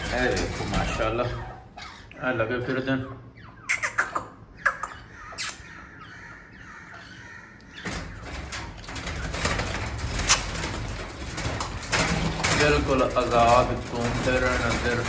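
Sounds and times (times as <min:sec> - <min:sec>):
harsh bird calls: 0:00.0 - 0:15.0.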